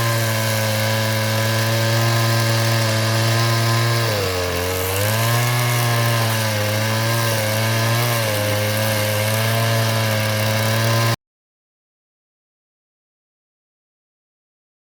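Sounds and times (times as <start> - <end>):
chainsaw cutting wood: 0.0 - 11.2.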